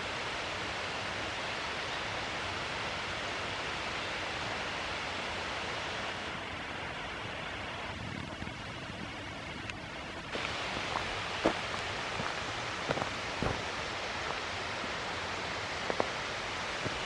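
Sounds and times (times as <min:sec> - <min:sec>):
waterfall pouring: 0:10.3 - 0:17.0.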